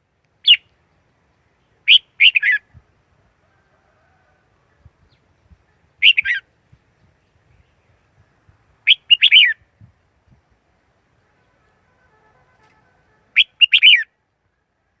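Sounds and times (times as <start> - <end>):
bulbul singing warbled phrases: 1.3 - 2.8, 5.0 - 9.6, 13.3 - 14.1.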